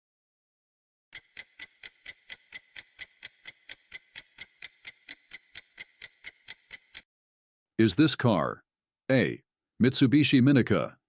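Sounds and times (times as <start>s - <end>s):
clock ticking: 1.2s - 7.0s.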